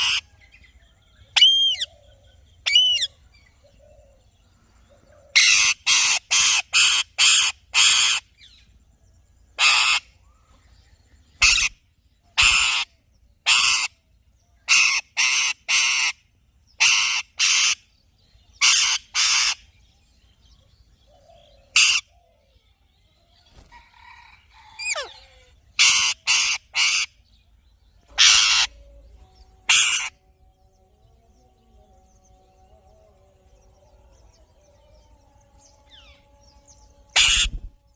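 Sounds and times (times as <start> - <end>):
parakeet rasping calls: 5.4 - 8.2, 9.6 - 10.0, 11.4 - 11.7, 12.4 - 13.9, 14.7 - 16.2, 16.8 - 17.8, 18.6 - 19.7, 25.8 - 27.1, 28.2 - 28.8, 29.6 - 30.2, 37.2 - 37.7.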